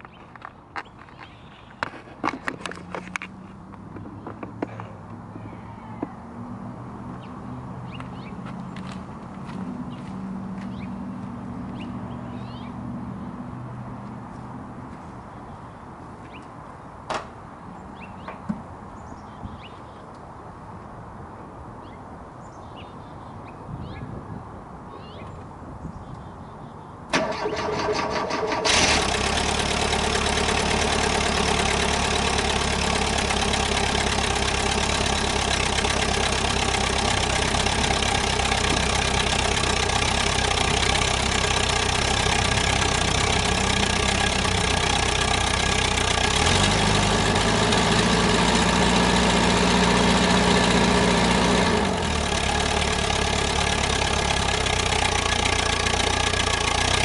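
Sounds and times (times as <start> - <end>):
engine cranking and idling: 27.1 - 57.0.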